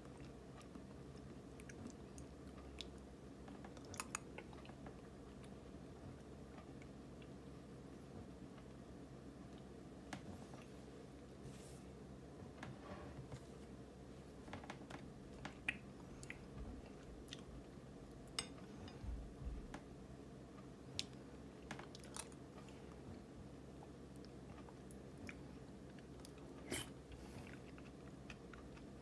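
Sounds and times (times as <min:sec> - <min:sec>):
person chewing with wet lip-smacking: 0:00.0 - 0:05.6, 0:15.4 - 0:17.5, 0:23.8 - 0:29.0.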